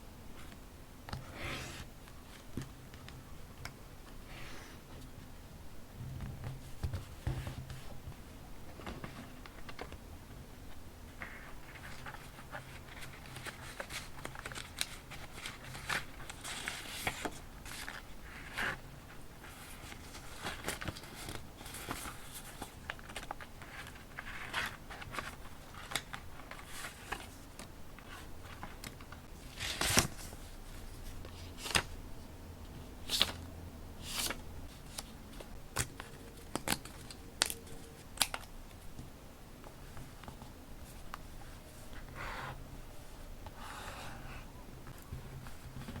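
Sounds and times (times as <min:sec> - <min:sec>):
paper rustling and crinkling: 0:11.2 - 0:18.8, 0:19.4 - 0:32.0.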